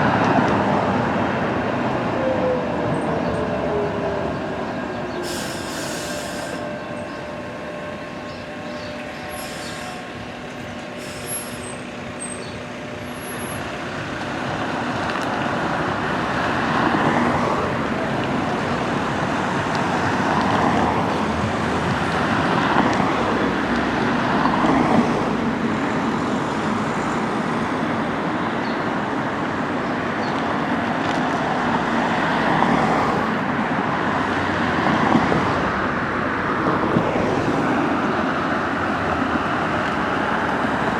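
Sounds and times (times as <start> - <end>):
steady whining tones: 2.6 - 15.1.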